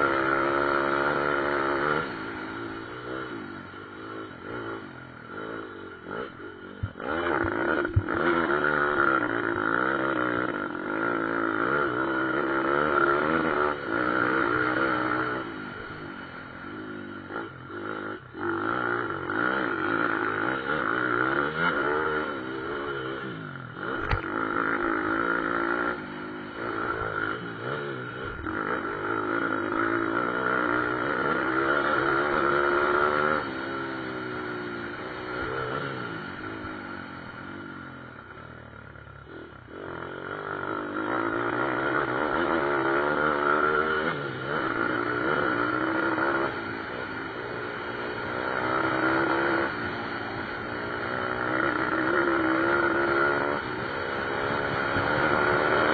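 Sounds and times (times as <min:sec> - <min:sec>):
sharp click: 0:24.0 - 0:24.3.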